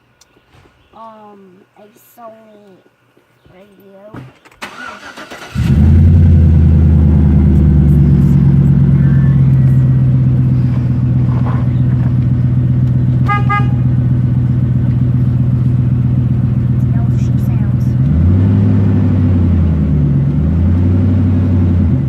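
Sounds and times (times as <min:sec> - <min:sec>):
truck engine starting and idling: 0:04.6 - 0:22.0.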